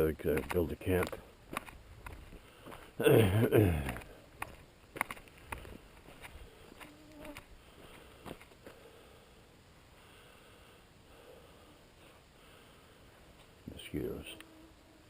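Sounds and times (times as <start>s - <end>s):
mosquitoes whining: 6.7s - 7.5s, 13.8s - 15.0s.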